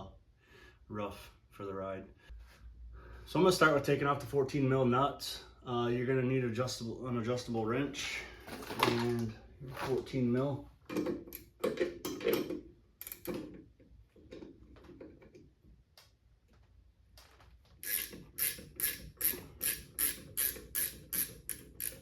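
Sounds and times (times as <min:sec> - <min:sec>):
ratchet wrench clicking: 0:13.0 - 0:13.3, 0:17.8 - 0:22.0.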